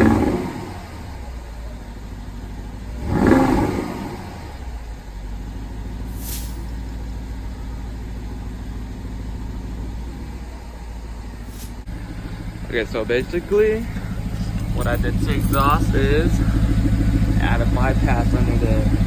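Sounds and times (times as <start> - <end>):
car engine revving and idling: 0.0 - 19.0
brief hiss: 6.1 - 6.7, 11.4 - 11.9.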